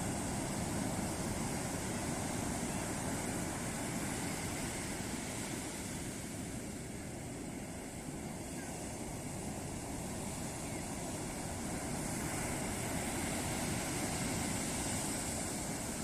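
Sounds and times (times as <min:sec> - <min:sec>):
ocean surf breaking: 0:08.6 - 0:16.0.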